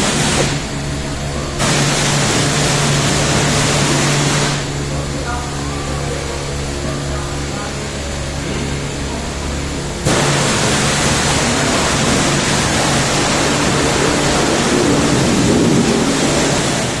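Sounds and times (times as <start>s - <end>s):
low hum: 0.0s - 17.0s
pressure washer spraying water: 0.0s - 17.0s.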